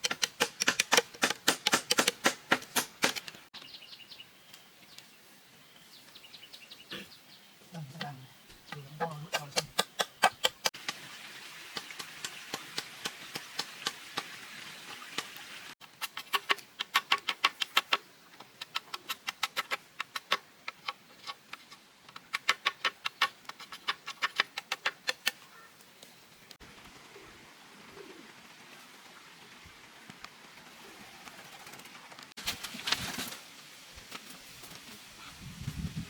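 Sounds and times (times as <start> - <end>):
rapid sharp knocks: 0.0 - 3.2.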